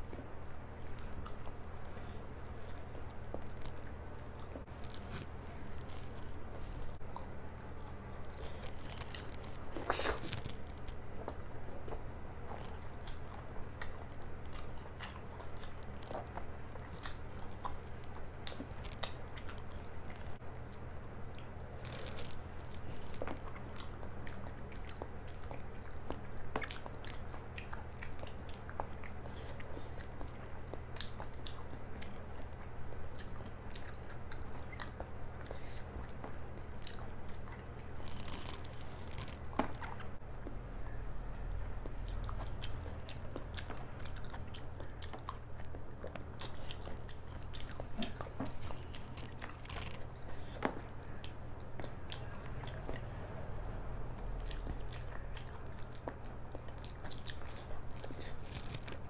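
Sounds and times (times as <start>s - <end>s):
chewing and biting: 0.0s - 40.2s, 41.7s - 53.2s, 53.9s - 59.0s
low hum: 37.7s - 59.0s.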